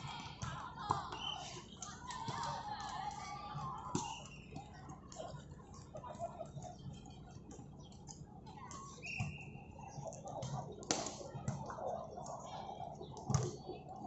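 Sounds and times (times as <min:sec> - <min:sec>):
murmur of voices: 0:00.0 - 0:14.0
shoe squeaks and clicks: 0:04.0 - 0:04.8, 0:08.7 - 0:10.8.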